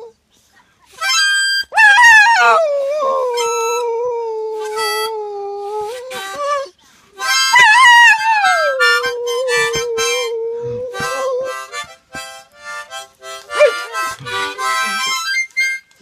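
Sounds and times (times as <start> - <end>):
harmonica chords: 1.0 - 1.8, 4.6 - 16.0
dog howling: 1.7 - 6.7, 7.5 - 11.8, 13.5 - 14.6.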